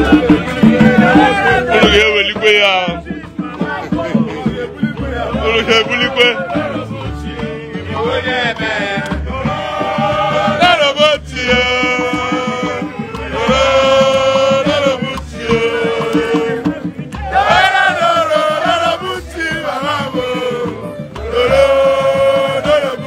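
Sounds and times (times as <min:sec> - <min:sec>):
men singing chant-like phrases: 0:00.0 - 0:23.0
percussion: 0:00.0 - 0:23.0.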